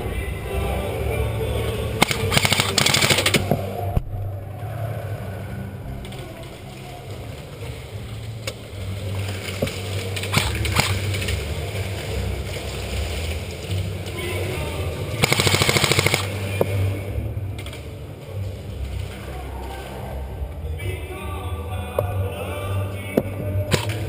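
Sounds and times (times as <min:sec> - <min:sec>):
low hum: 0:00.0 - 0:24.0
full-auto airsoft burst: 0:02.0 - 0:03.5, 0:10.3 - 0:11.1, 0:15.2 - 0:16.4
airsoft gun shots: 0:02.0 - 0:03.6, 0:10.3 - 0:11.0, 0:15.2 - 0:16.3.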